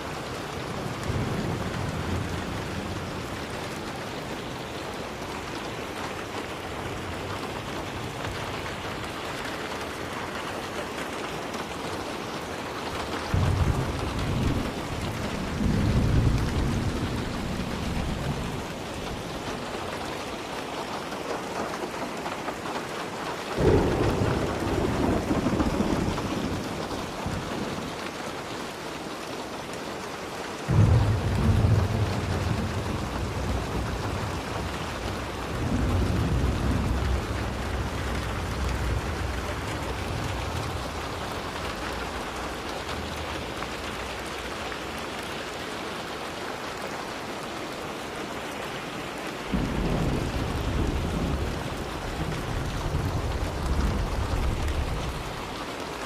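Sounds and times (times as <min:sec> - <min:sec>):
thunder rumbling: 0:00.0 - 0:10.2, 0:12.8 - 0:20.4, 0:23.6 - 0:28.1, 0:30.7 - 0:45.3, 0:49.4 - 0:56.0
steady rainfall: 0:00.0 - 0:56.0.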